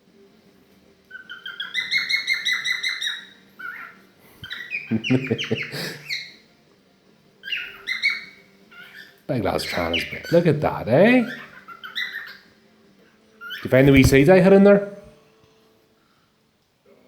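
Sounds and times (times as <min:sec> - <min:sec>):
cockatiel chirping and warbling: 0:01.2 - 0:04.8, 0:07.4 - 0:09.1, 0:11.3 - 0:12.4.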